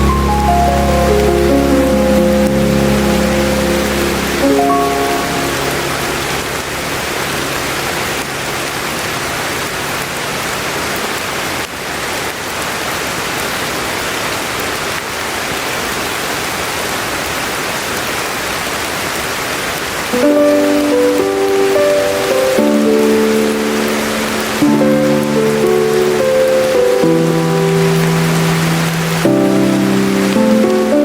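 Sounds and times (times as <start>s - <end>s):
music melody: 0.0s - 9.1s, 20.2s - 31.0s
steady rain hiss: 0.0s - 31.0s.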